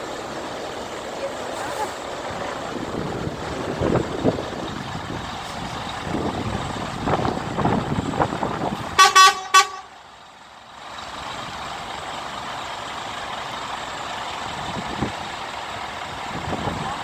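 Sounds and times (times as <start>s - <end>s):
truck engines and traffic rumble: 0.0s - 17.0s
truck horn toots: 8.8s - 10.0s.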